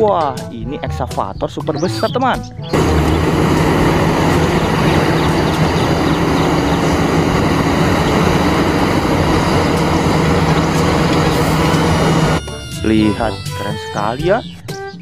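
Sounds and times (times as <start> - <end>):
excavator diesel engine running: 2.7 - 12.4.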